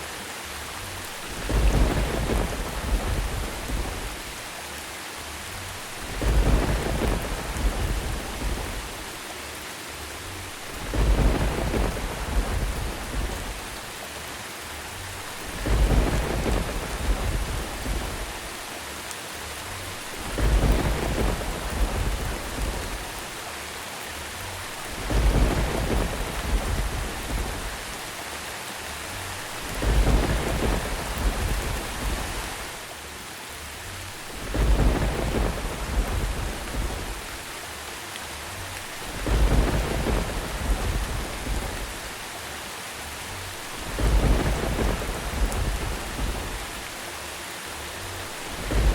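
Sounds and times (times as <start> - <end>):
steady rain: 0.0 - 48.9
low thunder rumble: 1.0 - 4.5, 5.8 - 9.2, 10.4 - 14.0, 15.1 - 18.7, 19.8 - 23.4, 24.4 - 28.1, 29.2 - 32.8, 34.1 - 37.6, 38.8 - 42.3, 43.3 - 47.0, 48.1 - 48.9.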